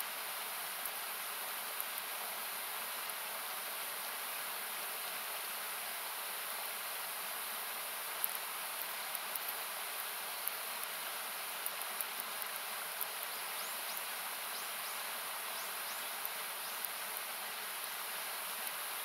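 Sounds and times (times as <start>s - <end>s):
hissy rushing water: 0.0s - 19.0s
campfire crackling: 8.0s - 14.5s.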